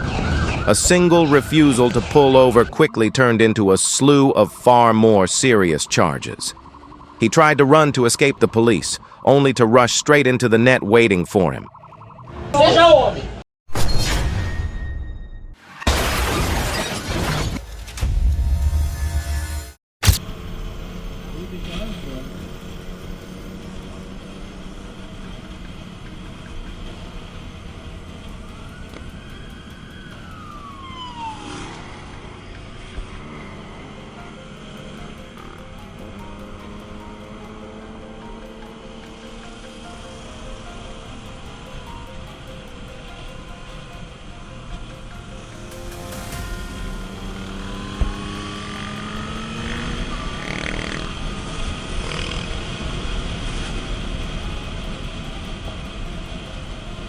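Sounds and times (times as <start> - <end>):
police siren wailing: 0.0 - 10.3, 20.9 - 57.0
vehicle rumble on road: 20.2 - 57.0.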